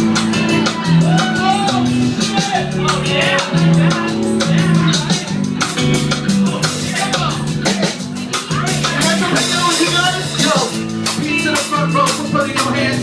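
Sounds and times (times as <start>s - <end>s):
band playing instrumental groove: 0.0s - 13.0s
bass: 0.0s - 13.0s
drum kit beat: 0.0s - 13.0s.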